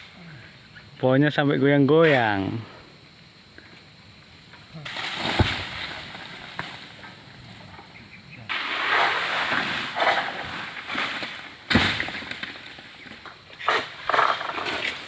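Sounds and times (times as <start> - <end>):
palm fronds rustling and scraping: 4.7 - 7.9, 8.5 - 15.0.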